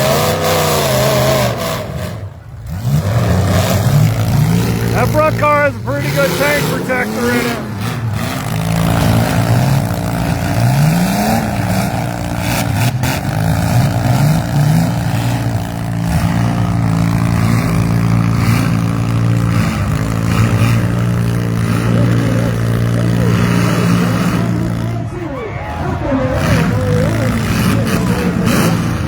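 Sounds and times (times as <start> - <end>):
engines revving: 0.0 - 29.0.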